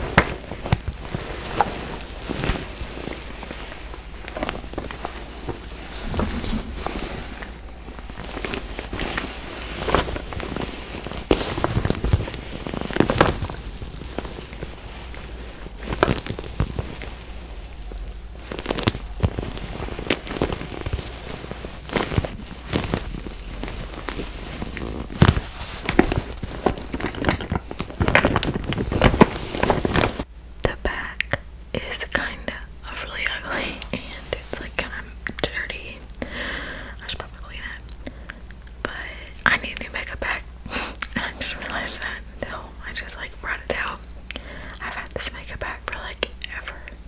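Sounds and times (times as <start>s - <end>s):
crinkly clicks: 17.8s - 30.2s.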